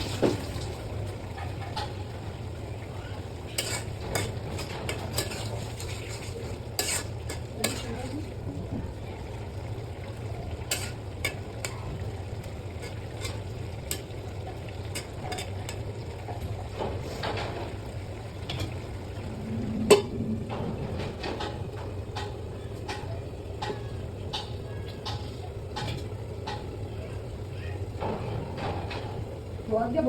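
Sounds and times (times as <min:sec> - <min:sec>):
utensil clinking and scraping in pan: 0:00.2 - 0:27.3.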